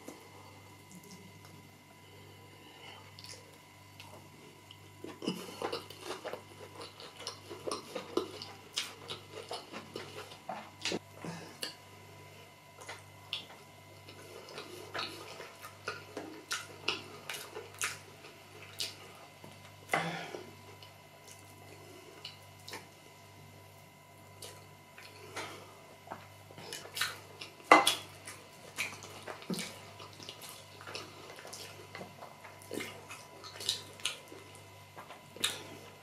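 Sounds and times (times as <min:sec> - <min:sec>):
steady low hum: 0:00.0 - 0:36.0
chewing and mouth smacks: 0:03.1 - 0:11.0, 0:12.8 - 0:19.8, 0:22.2 - 0:22.9, 0:24.4 - 0:25.5, 0:26.1 - 0:36.0.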